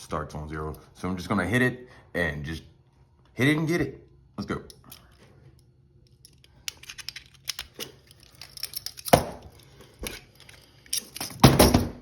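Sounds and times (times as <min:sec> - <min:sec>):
handcuffs rattling and clinking: 0:06.0 - 0:11.8.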